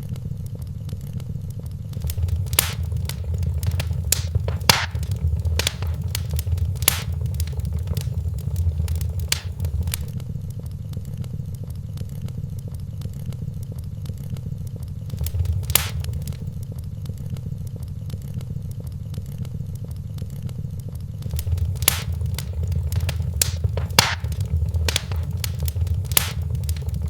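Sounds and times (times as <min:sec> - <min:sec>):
loud fire pops: 0:02.0 - 0:10.1, 0:15.1 - 0:16.5, 0:21.2 - 0:27.0
low steady rumble: 0:02.0 - 0:10.1, 0:15.1 - 0:16.6, 0:21.2 - 0:27.0
wood fire crackling: 0:02.0 - 0:10.1, 0:15.1 - 0:16.5, 0:21.2 - 0:27.0.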